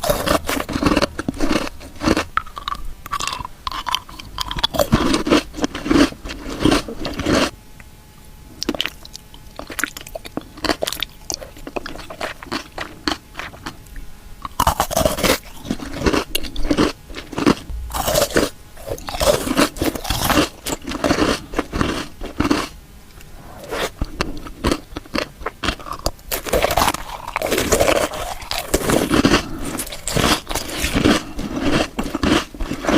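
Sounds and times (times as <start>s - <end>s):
crunching and chewing: 0.0s - 7.6s, 8.5s - 32.9s.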